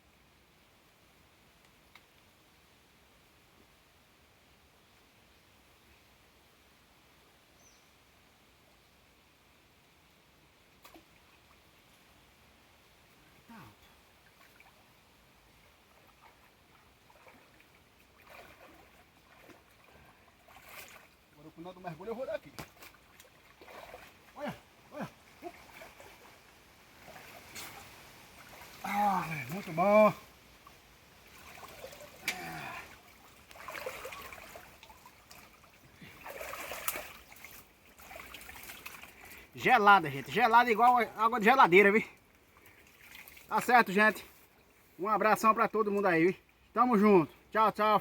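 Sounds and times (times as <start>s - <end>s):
water sloshing and trickling: 13.8s - 44.8s.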